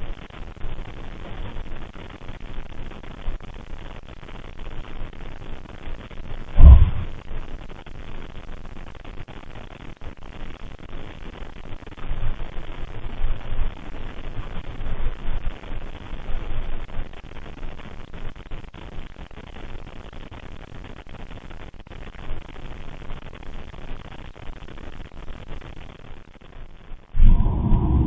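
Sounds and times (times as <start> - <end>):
heavy dull thud: 6.6 - 7.2, 27.2 - 28.0
soft low thumps and rumbling: 6.6 - 7.2, 27.2 - 28.0.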